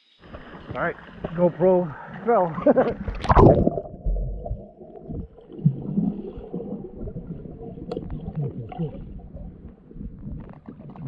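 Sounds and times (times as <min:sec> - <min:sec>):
muffled underwater rumble: 0:00.2 - 0:11.0
small clicks underwater: 0:07.8 - 0:11.0.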